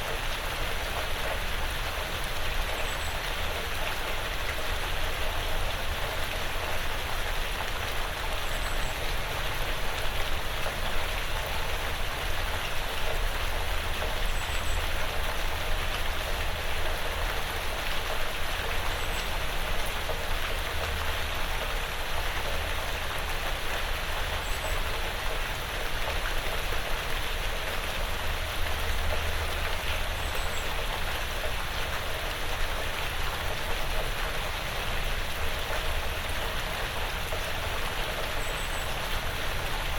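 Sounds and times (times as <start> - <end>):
rain pattering on roof: 0.0 - 39.9.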